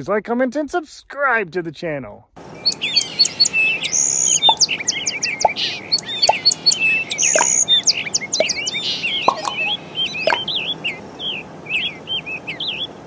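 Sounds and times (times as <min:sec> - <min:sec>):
small birds chirping: 0:02.5 - 0:13.0
downward-sweeping bird call: 0:02.6 - 0:13.0.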